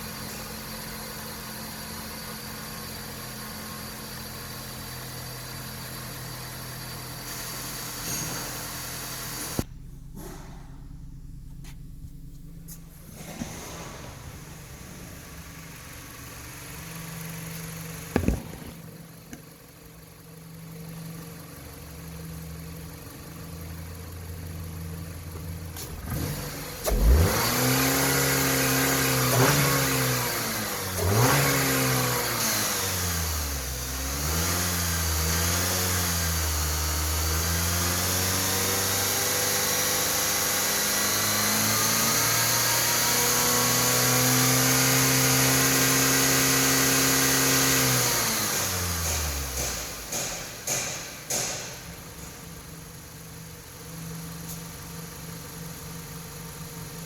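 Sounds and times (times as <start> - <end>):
car engine revving and idling: 0.0 - 57.0.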